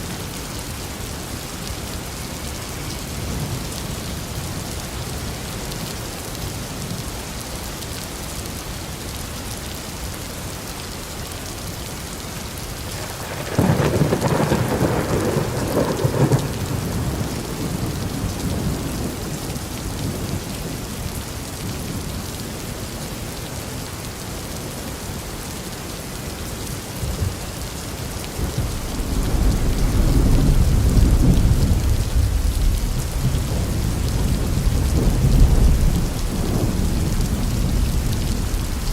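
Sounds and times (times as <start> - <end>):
steady rain: 0.0 - 38.9
thunder rumbling: 13.0 - 20.4, 28.3 - 38.9.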